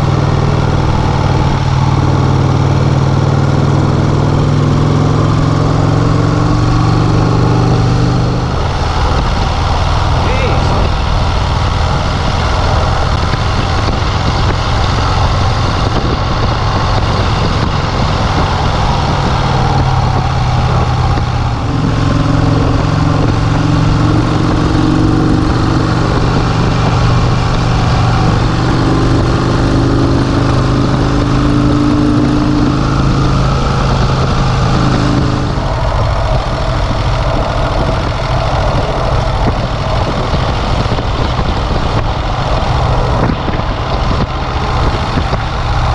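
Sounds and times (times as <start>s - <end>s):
motorcycle engine running: 0.0s - 45.9s
wind noise on microphone: 0.0s - 45.9s.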